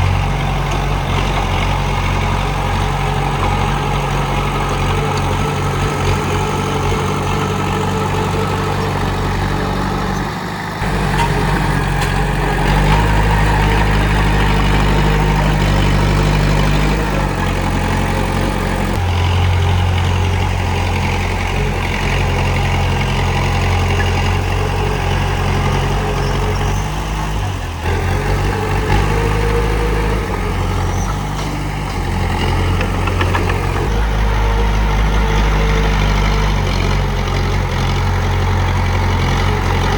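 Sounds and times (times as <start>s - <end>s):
bulldozer diesel engine: 0.0s - 39.9s.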